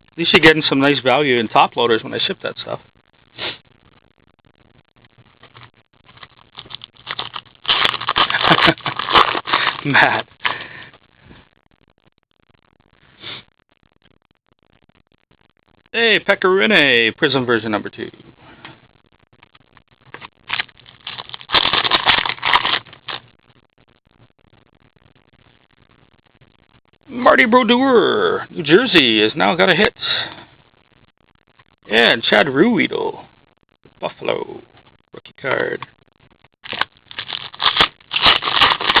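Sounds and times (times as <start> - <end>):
card pack wrappers crinkling: 5.4 - 10.7, 20.1 - 23.3, 36.6 - 39.0.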